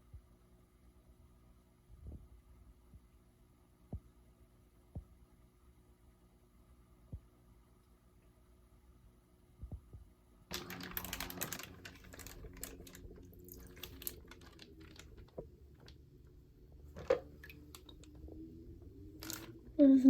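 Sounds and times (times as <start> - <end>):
low steady hum: 0.0 - 20.0
rustling and small clicks of handling: 10.5 - 16.0, 19.2 - 19.5.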